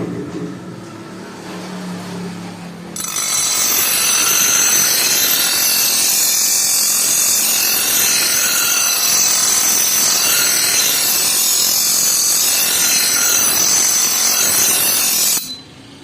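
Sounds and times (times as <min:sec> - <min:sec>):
grinder motor hum: 0:03.0 - 0:15.6
grinder grinding steel: 0:03.0 - 0:15.7.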